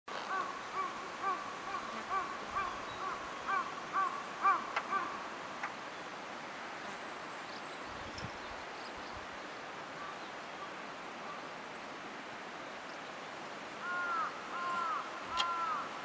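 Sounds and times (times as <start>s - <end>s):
countryside background hiss: 0.1s - 16.0s
bird calling: 0.2s - 5.8s, 13.8s - 16.0s.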